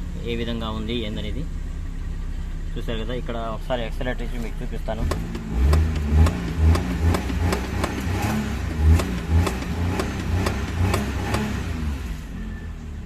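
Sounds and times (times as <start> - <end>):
car engine revving: 0.0 - 13.0
regular ticking: 4.9 - 11.9.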